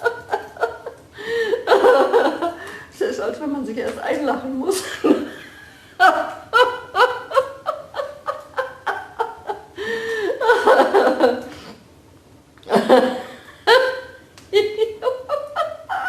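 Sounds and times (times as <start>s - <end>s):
person laughing: 6.0s - 11.5s, 12.7s - 16.0s.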